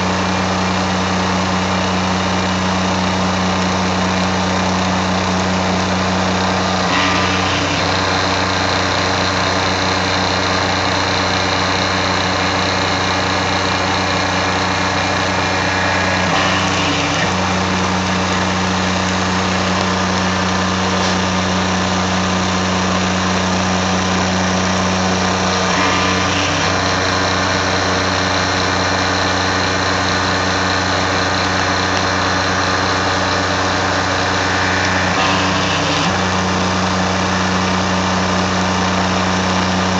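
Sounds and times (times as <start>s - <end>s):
high whine: 6.7s - 39.4s
mill machining hum: 6.8s - 21.3s, 25.1s - 29.3s, 30.4s - 37.8s.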